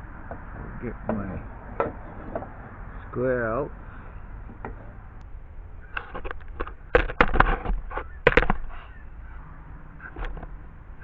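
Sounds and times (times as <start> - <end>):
tools knocking and clattering: 1.1 - 2.6.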